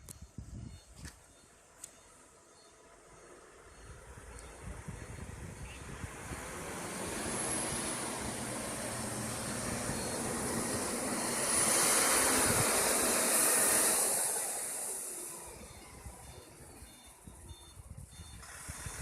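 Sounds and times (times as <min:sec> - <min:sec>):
road sweeper suction hiss and whine: 0:02.8 - 0:17.4.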